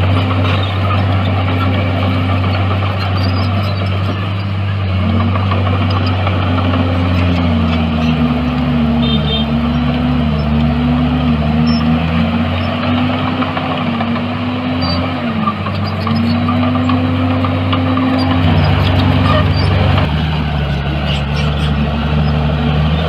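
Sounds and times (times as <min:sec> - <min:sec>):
heavy diesel engine running: 0:00.0 - 0:23.0.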